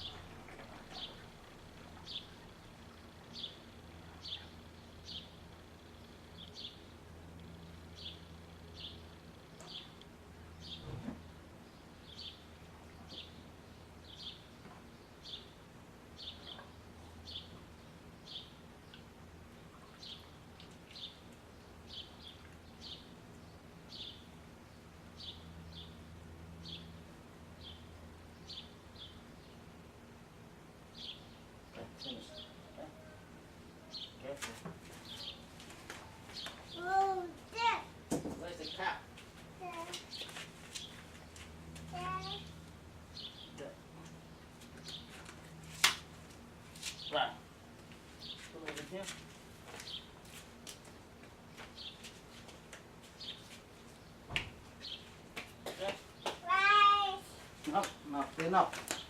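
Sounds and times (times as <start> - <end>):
bird chirping: 0.0 - 6.9
faint low hum: 0.0 - 59.0.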